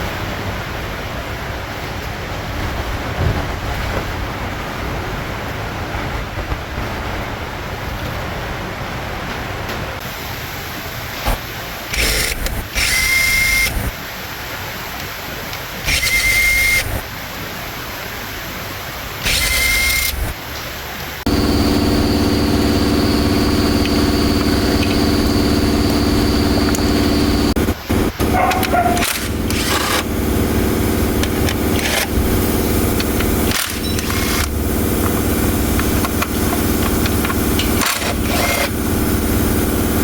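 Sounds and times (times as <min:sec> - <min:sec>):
diesel engine idling: 0:21.3 - 0:40.0
thin high whine: 0:21.3 - 0:40.0.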